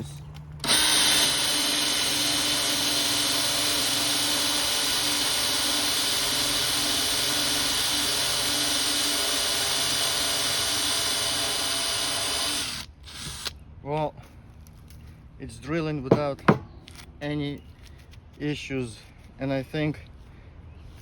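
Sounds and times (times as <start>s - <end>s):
power drill boring: 0.6s - 13.5s.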